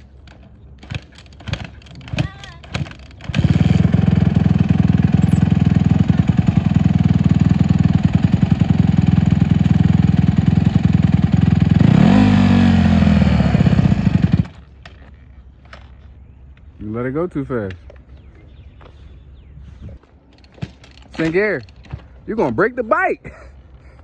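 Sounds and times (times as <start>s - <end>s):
dirt bike engine revving: 3.2s - 14.7s.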